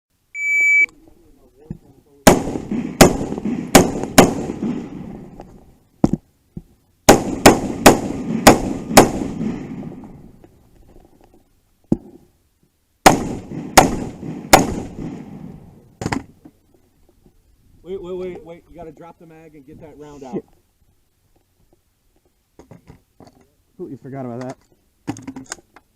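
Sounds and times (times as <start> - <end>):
gunshots with long echo: 2.2 - 5.4, 7.1 - 10.3, 13.0 - 15.8
faint gunshot cracks: 13.0 - 15.2.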